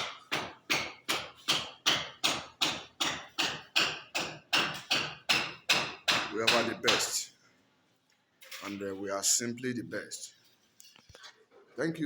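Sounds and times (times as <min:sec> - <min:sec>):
hammer blows ringing: 0:00.0 - 0:07.2.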